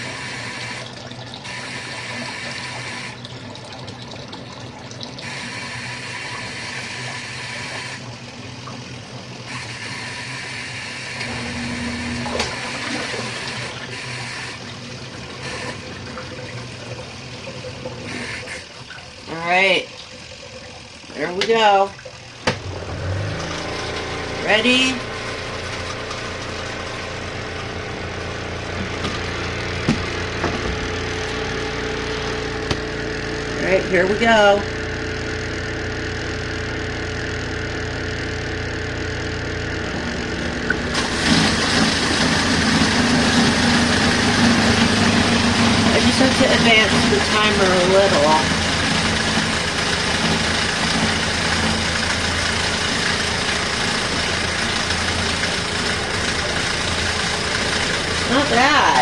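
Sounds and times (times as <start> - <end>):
washing machine motor hum: 0.0 - 59.0
water churning in tub: 0.0 - 59.0
washing machine clunks: 21.2 - 24.4, 25.2 - 33.0.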